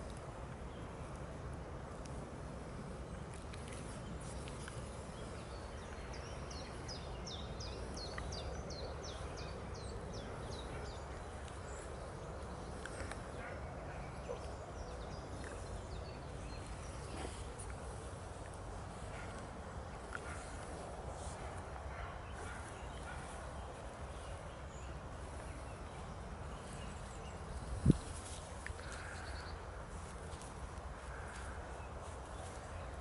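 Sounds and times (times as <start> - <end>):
faint clicks and rustles: 0.0 - 33.0
outdoor background noise: 0.0 - 33.0.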